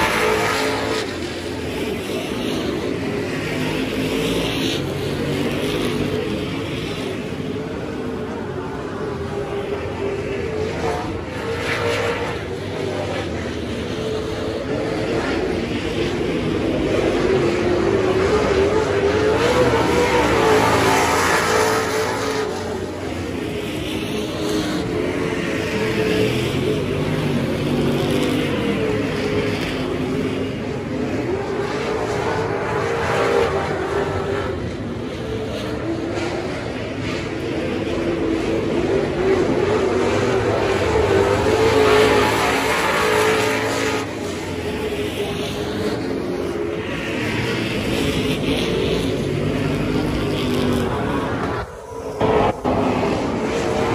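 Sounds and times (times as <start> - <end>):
race car engine running hard: 0.0 - 53.9.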